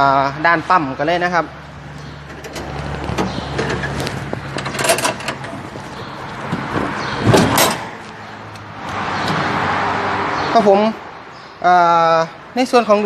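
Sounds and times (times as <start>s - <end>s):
handling knocks and clatters: 2.0s - 8.2s.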